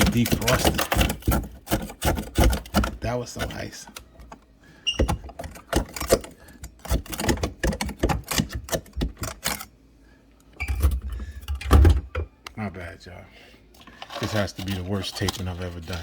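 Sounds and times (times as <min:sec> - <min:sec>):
ice knocking in ice maker: 0:00.0 - 0:03.8.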